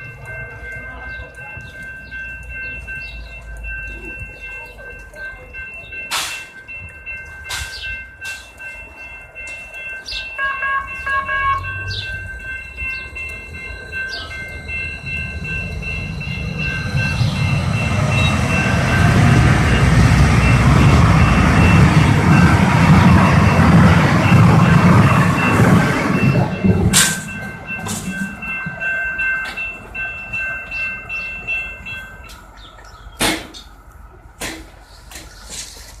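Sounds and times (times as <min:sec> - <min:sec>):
light-rail train rumble: 0:00.0 - 0:36.0
high whine: 0:11.6 - 0:32.5.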